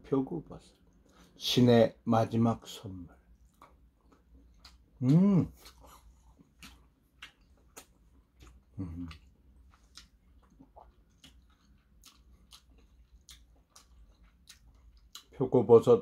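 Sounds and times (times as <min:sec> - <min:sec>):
close-up chewing: 0:03.2 - 0:15.4
person humming mm: 0:05.0 - 0:05.6, 0:08.8 - 0:09.2.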